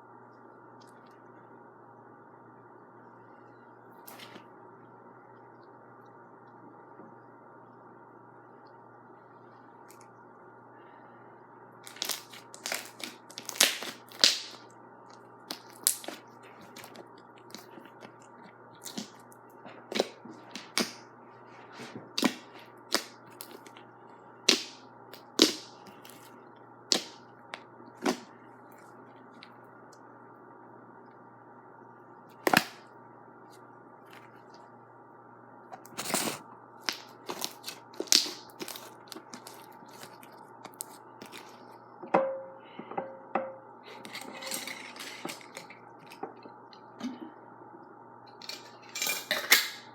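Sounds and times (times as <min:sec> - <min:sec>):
slime popping and crackling: 0:11.8 - 0:14.7, 0:15.4 - 0:17.8, 0:22.2 - 0:23.8, 0:24.5 - 0:26.2, 0:36.8 - 0:41.5.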